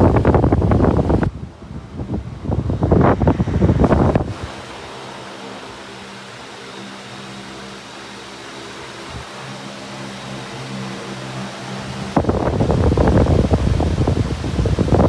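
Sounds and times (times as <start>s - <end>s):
airflow rushing on microphone: 0.0s - 7.2s, 8.8s - 15.0s
electric fan motor hum: 0.0s - 15.0s
hiss of moving air: 0.0s - 15.0s.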